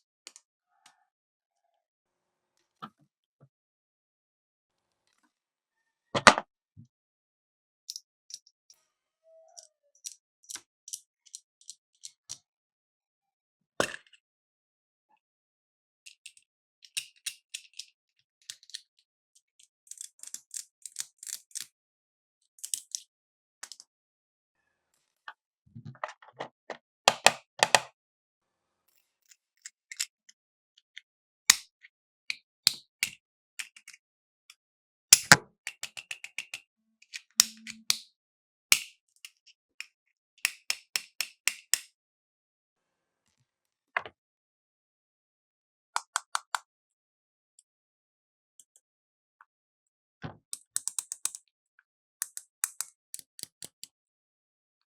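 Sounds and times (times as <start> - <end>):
plastic toy pieces clicking: 19.9 - 21.7, 22.6 - 23.0, 35.2 - 38.0, 40.5 - 41.9, 50.6 - 51.5, 52.2 - 53.8.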